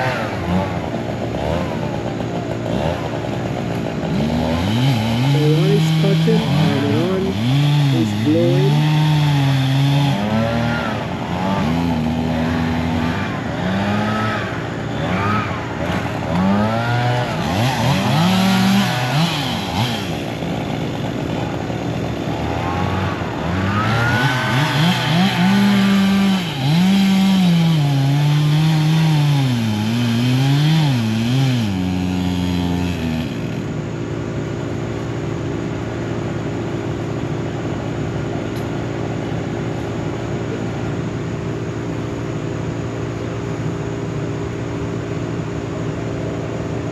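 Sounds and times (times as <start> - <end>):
engine revving: 0.0 - 33.9.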